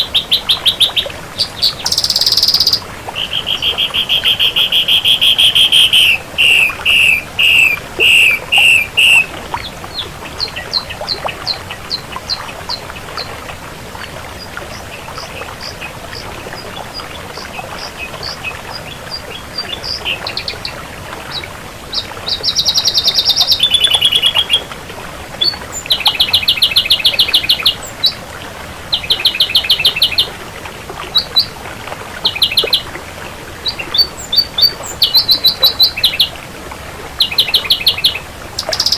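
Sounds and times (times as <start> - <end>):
bird singing: 0.0 - 12.5, 22.0 - 24.6, 28.9 - 30.3, 33.6 - 36.4, 37.2 - 38.9.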